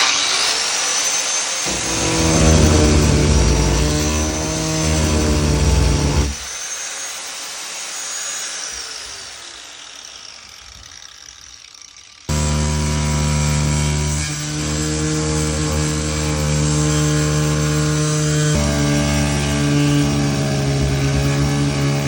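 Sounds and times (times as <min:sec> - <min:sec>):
angle grinder cutting: 0:01.7 - 0:06.6, 0:10.9 - 0:22.0
grinder winding down whine: 0:01.7 - 0:06.6, 0:11.0 - 0:22.0.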